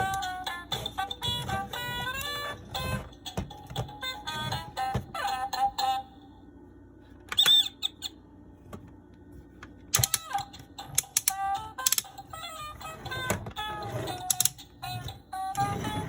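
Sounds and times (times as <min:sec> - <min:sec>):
toy electronic sound clips: 0:07.4 - 0:08.1, 0:09.9 - 0:16.0
plastic toy clicks and knocks: 0:09.9 - 0:12.2, 0:14.2 - 0:14.7.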